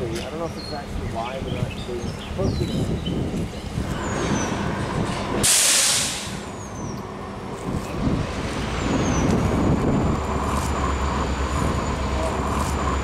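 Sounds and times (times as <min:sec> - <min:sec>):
train cars rumbling past: 0:00.0 - 0:13.0
sharp burst of hiss: 0:05.4 - 0:06.5.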